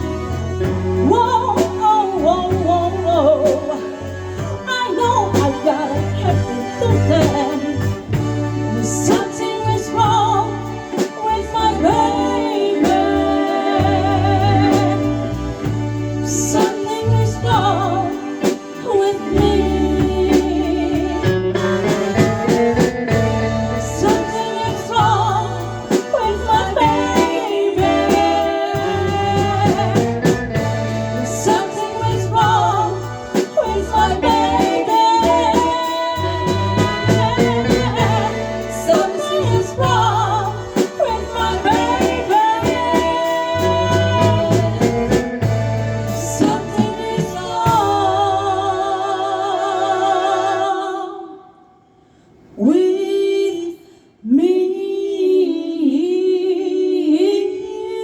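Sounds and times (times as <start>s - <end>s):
live band playing soul ballad: 0.0s - 50.6s
person singing: 23.9s - 30.4s, 31.2s - 45.2s.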